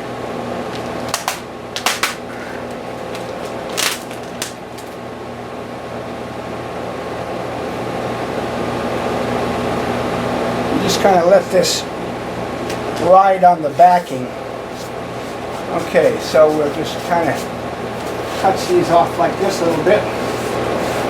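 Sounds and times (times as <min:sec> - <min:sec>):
fan humming: 0:00.0 - 0:21.0
tape rustling: 0:01.1 - 0:05.0.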